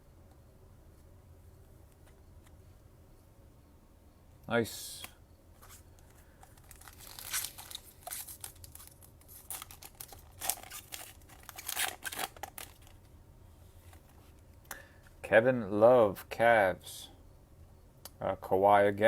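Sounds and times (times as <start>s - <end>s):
foil wrapper tearing and crinkling: 6.4s - 13.0s.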